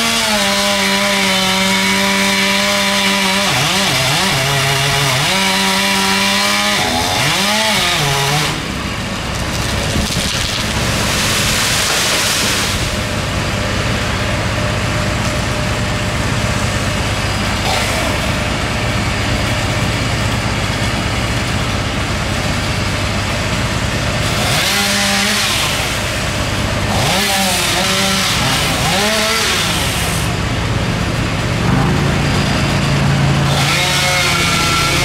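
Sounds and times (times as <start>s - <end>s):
chainsaw cutting wood: 0.0s - 35.0s
chainsaw engine running: 0.0s - 35.0s.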